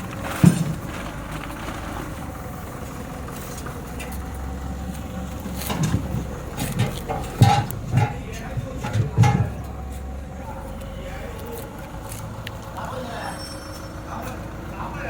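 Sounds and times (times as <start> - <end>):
tractor engine idling: 0.0 - 15.0
dull thumps: 5.3 - 10.2.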